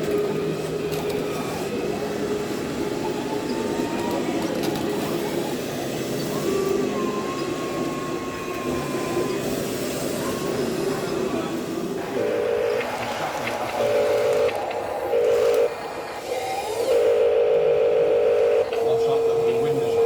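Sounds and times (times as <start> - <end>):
mechanical hum: 0.0 - 20.0.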